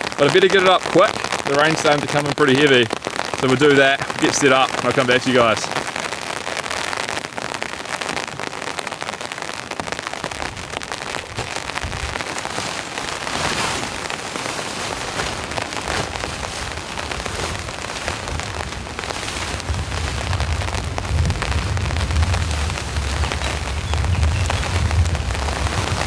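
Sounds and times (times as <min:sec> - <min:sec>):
heavy rain pattering: 0:00.0 - 0:26.0
low rumble: 0:17.1 - 0:26.0.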